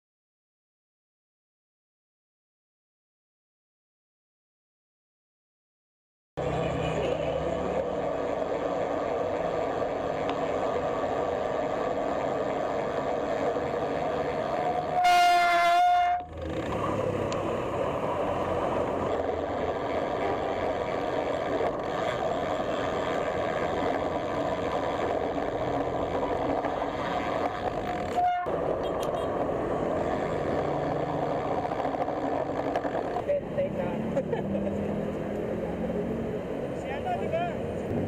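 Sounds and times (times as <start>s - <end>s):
road traffic noise: 6.4s - 38.0s
vehicle horn honking: 15.0s - 16.3s, 28.2s - 29.4s.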